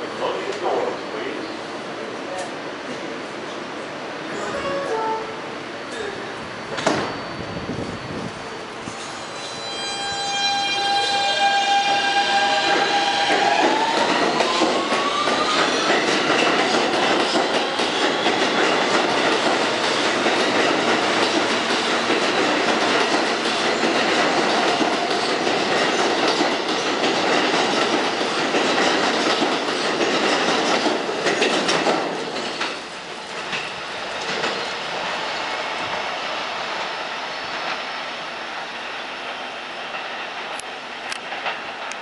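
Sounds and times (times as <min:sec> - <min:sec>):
train wheels clattering on rails: 0:05.9 - 0:07.2, 0:11.8 - 0:35.1, 0:39.2 - 0:42.0.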